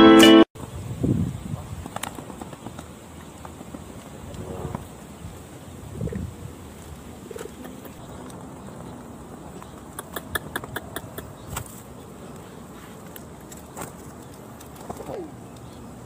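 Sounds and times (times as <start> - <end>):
pigeons cooing: 5.9 - 13.1, 14.2 - 16.0
sharp clicks: 9.6 - 11.8.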